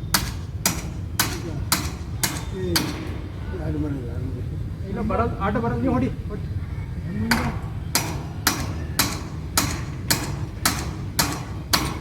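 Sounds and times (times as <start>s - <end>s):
hammer nailing tin roof sheets: 0.0s - 3.4s, 7.3s - 12.0s.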